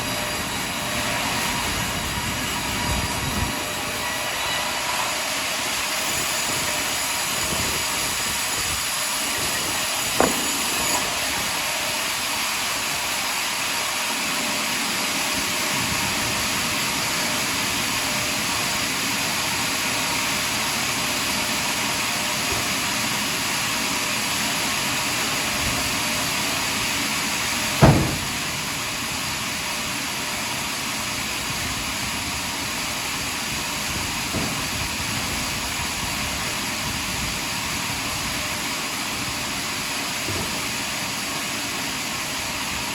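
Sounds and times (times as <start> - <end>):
sawmill blade cutting log: 3.5 - 14.4, 15.3 - 31.2
short knocks: 10.2 - 11.0, 27.8 - 28.8.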